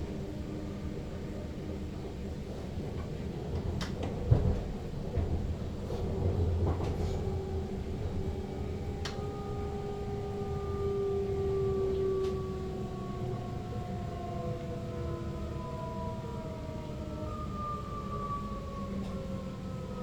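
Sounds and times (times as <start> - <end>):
train rumbling on rails: 0.0 - 20.0.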